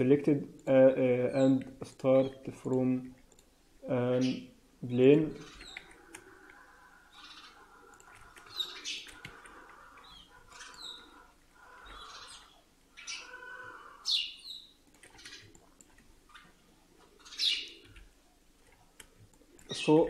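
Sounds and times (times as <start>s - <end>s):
computer mouse clicks and scrolling: 0.3s - 4.4s, 5.3s - 13.3s, 14.4s - 20.0s
faint bird chirps: 5.3s - 15.6s.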